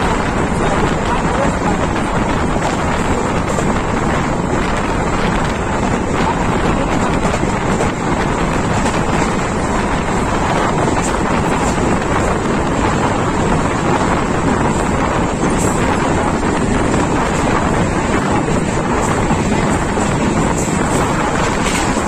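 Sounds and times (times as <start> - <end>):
moving train running noise: 0.0 - 22.0
wind buffeting microphone: 0.0 - 22.0.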